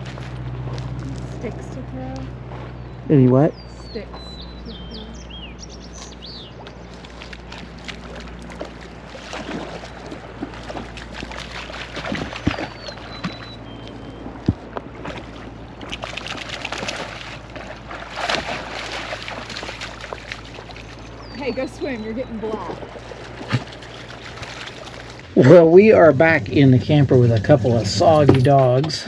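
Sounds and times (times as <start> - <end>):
water splashing and sloshing: 0.0 - 3.0, 4.0 - 29.0
bird whistled chirps: 3.6 - 6.5, 12.4 - 14.3.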